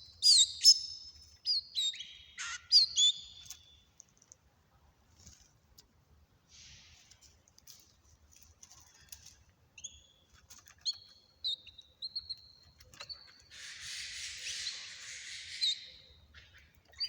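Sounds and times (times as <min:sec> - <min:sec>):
small birds chirping: 0:00.0 - 0:04.1, 0:08.7 - 0:17.0.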